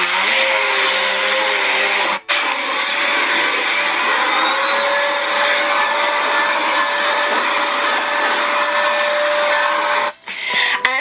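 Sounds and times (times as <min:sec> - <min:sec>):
vacuum cleaner running: 0:00.0 - 0:10.2.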